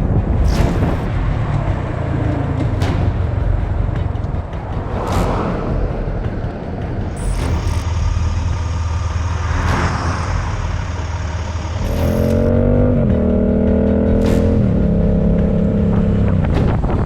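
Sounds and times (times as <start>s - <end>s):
motorcycle engine accelerating: 0.0s - 17.0s
wind rumble: 0.0s - 17.0s
vehicle whooshing past: 0.2s - 13.4s.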